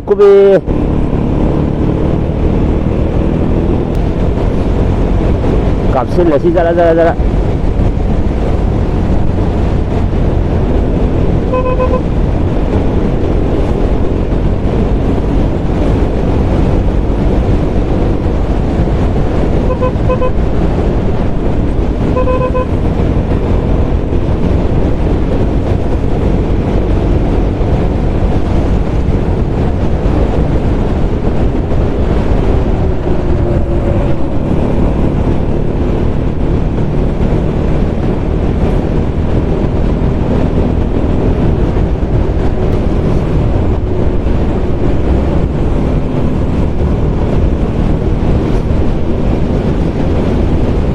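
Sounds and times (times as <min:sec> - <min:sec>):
wind and road noise: 0:00.0 - 0:50.9
vehicle horn beeps: 0:11.5 - 0:12.1, 0:19.6 - 0:20.4, 0:22.1 - 0:22.8.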